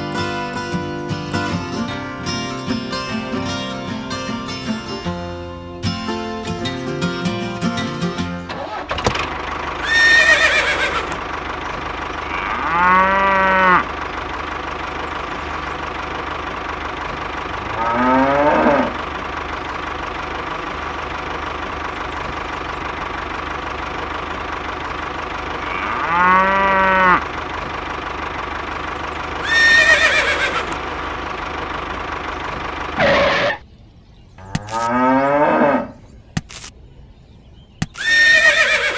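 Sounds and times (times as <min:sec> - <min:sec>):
tractor engine idling: 0:00.0 - 0:34.9
cows mooing: 0:09.8 - 0:11.2, 0:12.2 - 0:14.0, 0:17.5 - 0:19.0, 0:25.6 - 0:27.3, 0:29.4 - 0:30.8, 0:33.0 - 0:33.6, 0:34.4 - 0:36.0.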